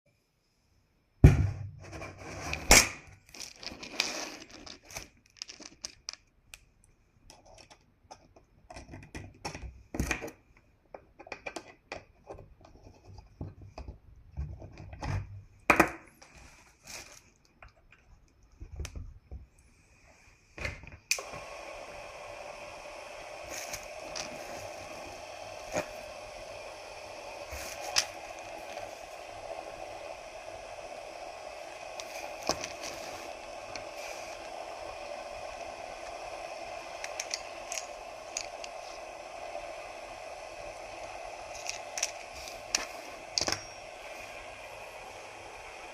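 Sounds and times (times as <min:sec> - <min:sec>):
small parts and tools handled: 0:01.8 - 0:15.1, 0:16.2 - 0:19.6, 0:23.4 - 0:26.2, 0:27.4 - 0:29.3, 0:31.9 - 0:34.7, 0:36.8 - 0:39.2, 0:41.4 - 0:44.0
small motor running: 0:21.2 - 0:45.9.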